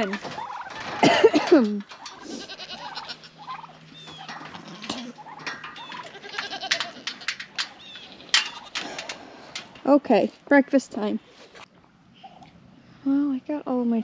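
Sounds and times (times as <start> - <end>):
goats bleating: 2.1 - 5.2, 5.8 - 8.8.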